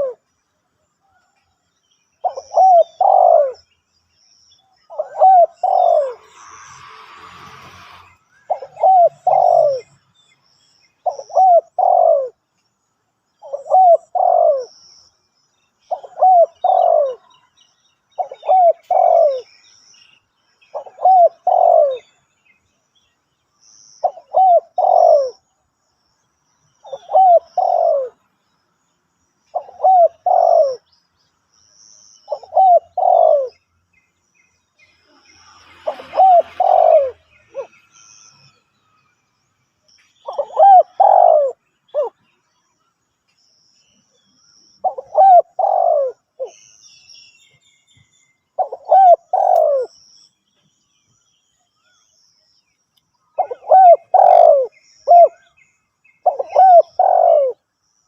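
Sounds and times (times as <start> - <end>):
dove cooing: 0.0 - 0.2, 2.2 - 3.6, 4.9 - 6.4, 8.5 - 10.0, 11.0 - 12.4, 13.4 - 14.8, 15.9 - 17.3, 18.2 - 19.5, 20.7 - 22.1, 24.0 - 25.5, 26.8 - 28.2, 29.5 - 30.9, 32.3 - 33.6, 35.8 - 37.7, 40.2 - 42.2, 44.8 - 46.6, 48.6 - 49.9, 53.4 - 55.5, 56.2 - 57.6
small birds chirping: 0.0 - 58.0.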